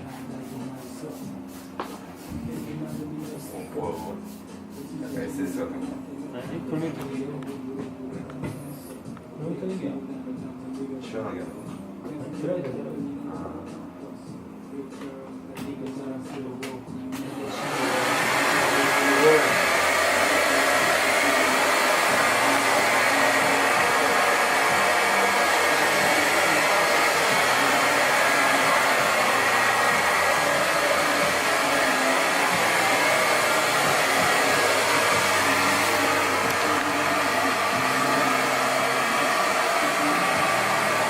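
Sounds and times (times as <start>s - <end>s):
hair dryer blowing: 17.2s - 41.0s.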